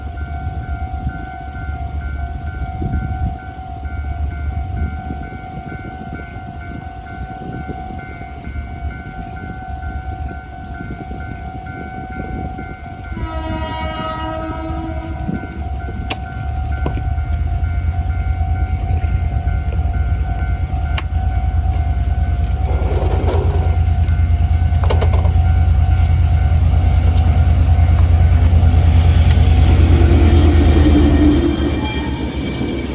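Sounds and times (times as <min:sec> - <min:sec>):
diesel locomotive rumbling past: 0:00.0 - 0:32.9
level crossing warning signal: 0:00.0 - 0:32.9
locomotive horn: 0:13.1 - 0:15.6, 0:28.7 - 0:32.8.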